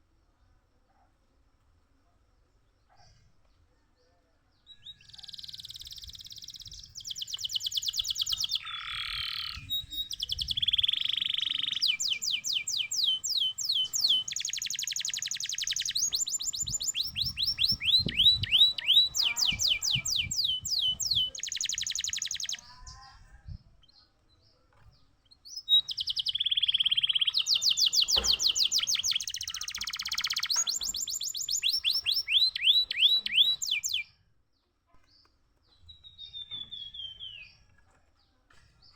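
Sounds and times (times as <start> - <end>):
canary singing: 4.7 - 23.2, 25.3 - 34.1, 35.9 - 37.6.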